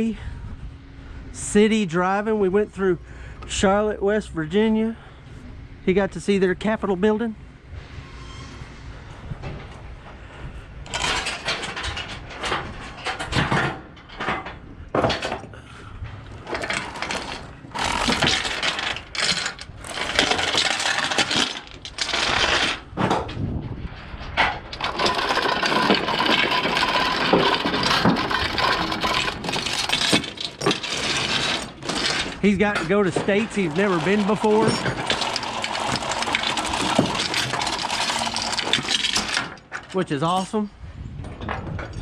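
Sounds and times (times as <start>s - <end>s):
metal gear clinking and rattling: 10.8s - 13.6s, 16.4s - 23.0s, 24.7s - 40.6s.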